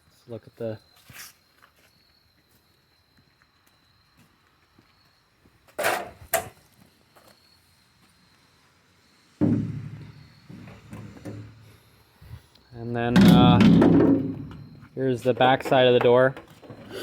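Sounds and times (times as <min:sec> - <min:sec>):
heavy door thud with ringing: 0:13.1 - 0:14.8
steel door knocking: 0:13.2 - 0:14.6.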